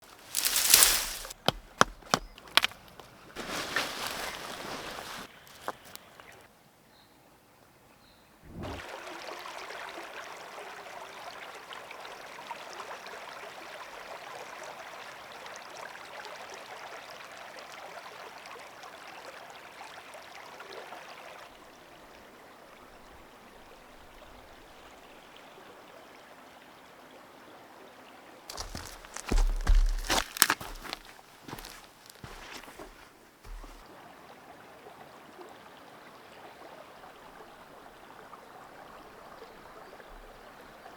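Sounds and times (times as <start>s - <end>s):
forest stream running: 0.0s - 40.9s.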